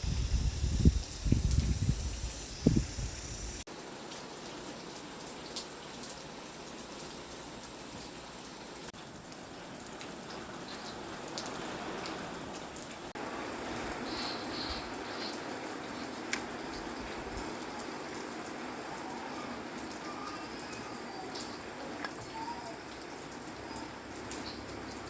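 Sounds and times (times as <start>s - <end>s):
steady hiss: 0.0s - 3.7s, 13.1s - 18.1s.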